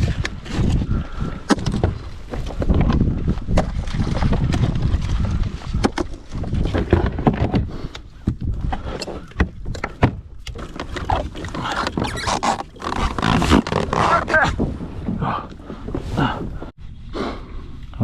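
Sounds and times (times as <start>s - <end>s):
knocks and clicks of fishing gear: 0.0s - 12.0s
wind rumbling on microphone: 0.0s - 18.0s.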